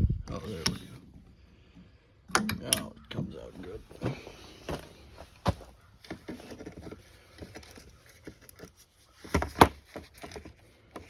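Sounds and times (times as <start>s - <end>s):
metal parts clicking and tapping: 2.3s - 2.9s.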